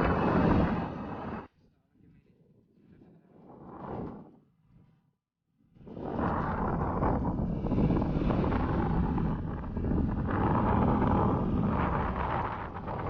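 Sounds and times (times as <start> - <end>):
wind buffeting microphone: 0.0 - 1.5, 5.8 - 13.0.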